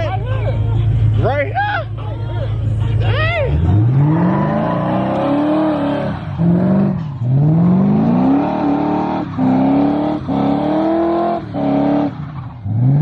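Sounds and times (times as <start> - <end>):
car engine revving hard: 3.5 - 13.0.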